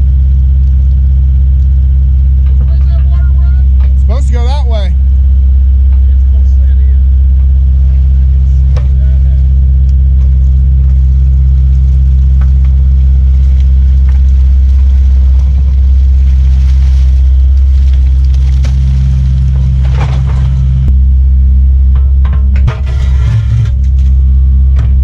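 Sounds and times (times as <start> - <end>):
excavator diesel engine droning: 0.0 - 25.0
short scraping rush: 22.7 - 24.1.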